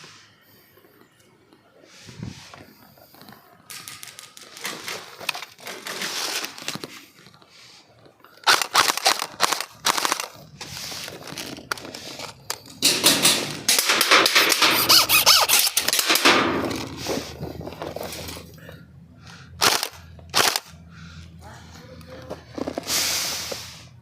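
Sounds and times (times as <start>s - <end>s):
airsoft guns firing rapid bursts: 8.4s - 10.4s, 19.6s - 20.7s.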